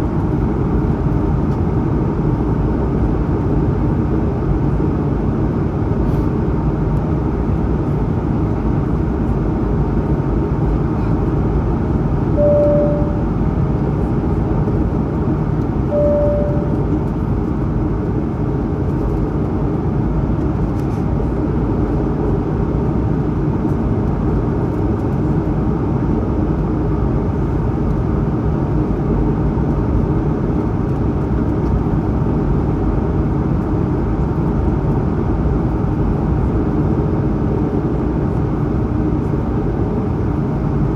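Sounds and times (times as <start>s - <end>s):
aircraft cabin engine rush: 0.0s - 40.9s
single-note cabin chimes: 12.4s - 13.4s, 15.9s - 16.9s.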